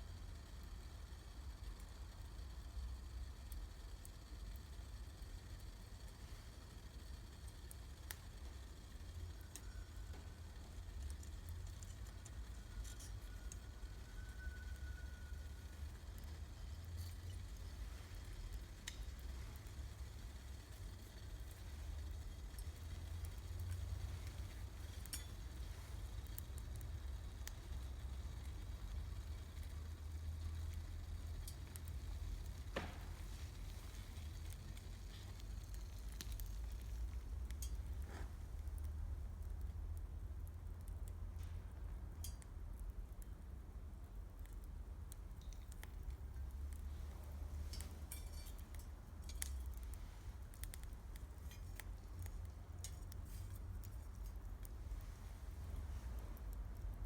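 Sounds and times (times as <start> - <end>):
campfire crackling: 0.0 - 57.0
fire pops and snaps: 3.2 - 57.0
loud fire pops: 32.4 - 34.6.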